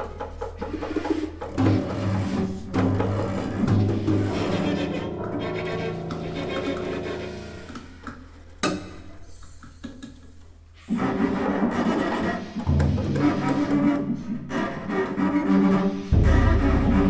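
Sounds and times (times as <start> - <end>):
violin: 0.0 - 8.5, 10.8 - 17.0
cello: 0.0 - 17.0
percussion: 0.0 - 17.0
piano: 1.2 - 9.3
clarinet: 1.6 - 8.2.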